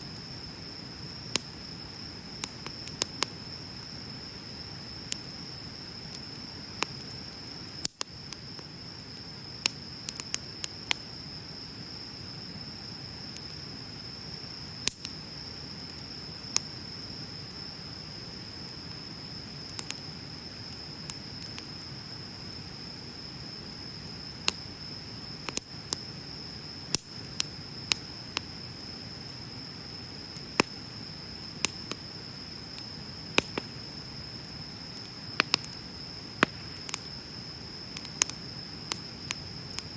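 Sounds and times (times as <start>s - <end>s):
fire burning hiss: 0.0s - 39.9s
high-pitched insect trill: 0.0s - 39.9s
bonfire pops and snaps: 0.1s - 11.1s, 14.8s - 22.0s, 23.0s - 26.1s, 26.8s - 29.5s, 30.3s - 39.9s.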